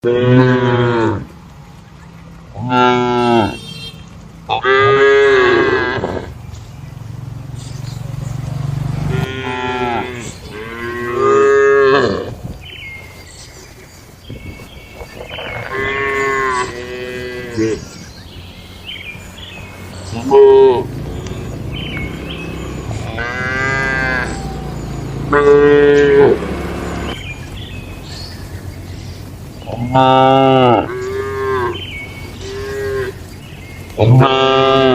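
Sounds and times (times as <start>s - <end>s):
cows mooing: 0.0s - 1.3s, 2.5s - 3.6s, 4.5s - 6.4s, 9.1s - 12.4s, 15.0s - 18.1s, 19.2s - 27.2s, 29.7s - 33.4s, 34.0s - 34.9s.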